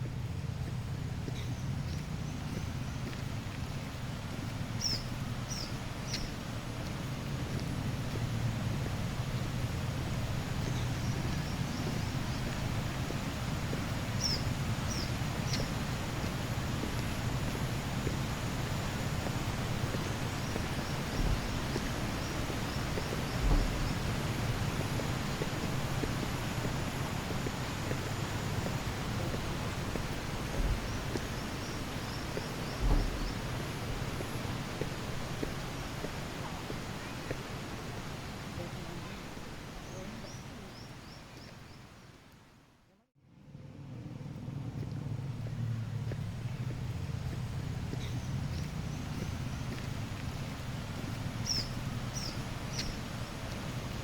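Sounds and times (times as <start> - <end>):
steady forest hiss: 0.0 - 54.0
high bird chirps: 4.8 - 6.3, 14.2 - 15.7
microphone bumps: 23.3 - 24.1, 30.0 - 31.2, 32.8 - 34.0
low rumble: 43.2 - 52.3.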